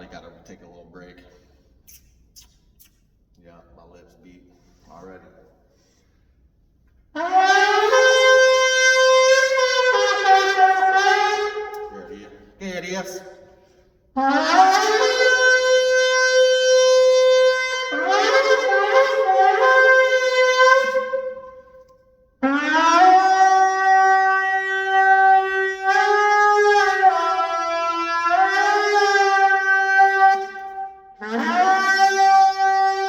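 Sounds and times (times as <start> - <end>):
horn shofar blasts: 7.1 - 33.0.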